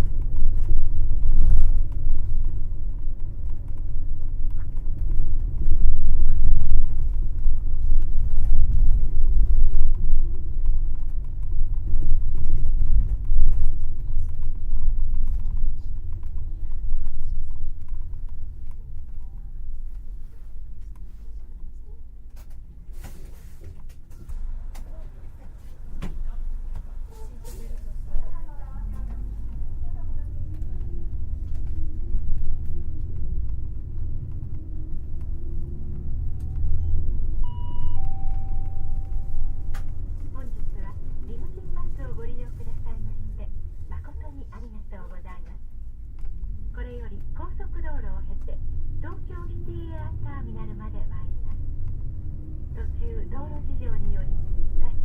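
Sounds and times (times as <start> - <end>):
bus engine and road rumble: 0.0 - 55.0
two-note electronic chime: 37.4 - 39.8.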